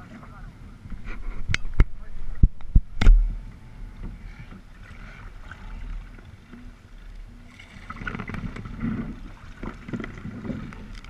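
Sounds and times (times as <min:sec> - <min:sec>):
wind rumble on microphone: 0:00.0 - 0:11.0
paddles splashing water: 0:03.6 - 0:11.0.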